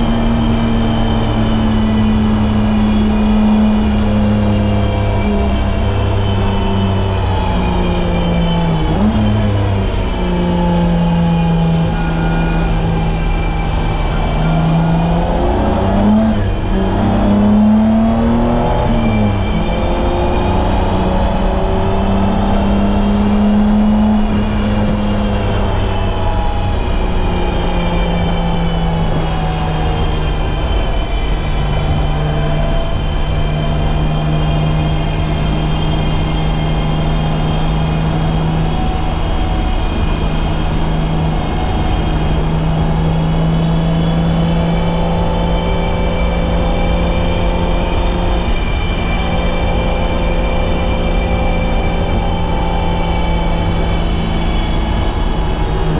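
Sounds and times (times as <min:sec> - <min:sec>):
car engine running: 0:00.0 - 0:55.9.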